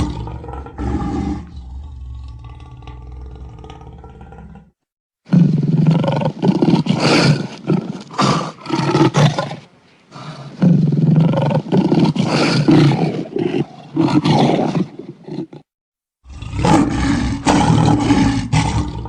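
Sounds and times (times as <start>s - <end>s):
big cat roaring: 0.0s - 9.6s, 10.2s - 19.0s.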